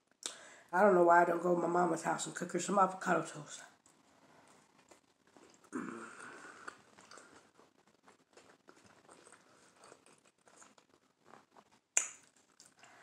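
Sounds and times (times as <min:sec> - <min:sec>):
wet mouth chewing clicks: 0:06.6 - 0:07.5, 0:12.0 - 0:12.9.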